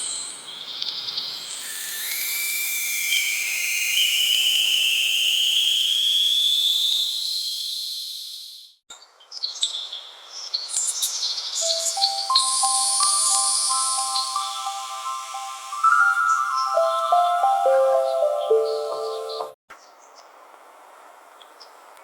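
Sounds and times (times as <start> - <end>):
high insect-like hiss: 1.2 - 8.8, 10.8 - 17.7
whistling tone rising in pitch: 1.4 - 8.8, 11.6 - 19.6
clicks and short chirps: 1.6 - 5.9, 10.8 - 17.2
bell-like music notes: 11.6 - 19.6.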